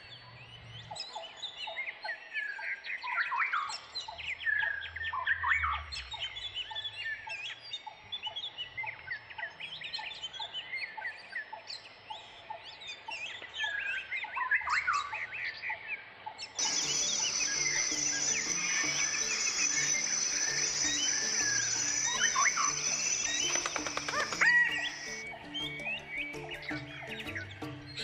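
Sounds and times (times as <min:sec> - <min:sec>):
birds chirping and whistling: 0:16.6 - 0:28.0
high-pitched whine: 0:16.6 - 0:28.0.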